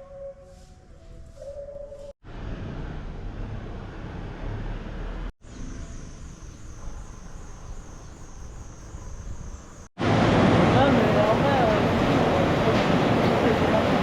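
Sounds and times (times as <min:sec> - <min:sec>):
insects droning: 0:05.4 - 0:09.9.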